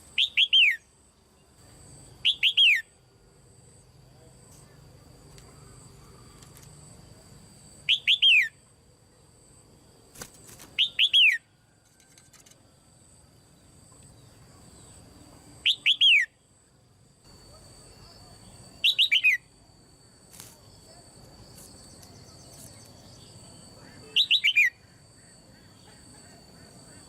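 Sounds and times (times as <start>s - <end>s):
bulbul calling: 18.8s - 19.4s, 23.8s - 27.0s.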